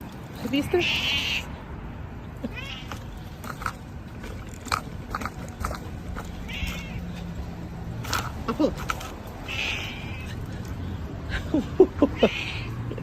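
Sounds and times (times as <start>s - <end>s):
cat calling: 0.7s - 1.6s, 2.4s - 3.2s, 6.2s - 7.2s, 9.4s - 10.5s
small clicks and rustling: 8.0s - 9.4s.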